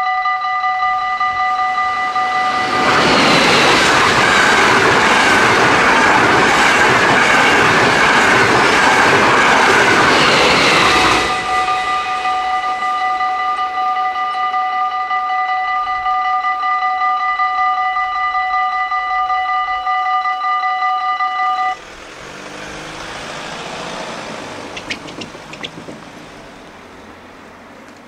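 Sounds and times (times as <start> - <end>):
passenger train passing: 0.0 - 20.4, 21.2 - 28.0
level-crossing warning bell: 0.0 - 21.8.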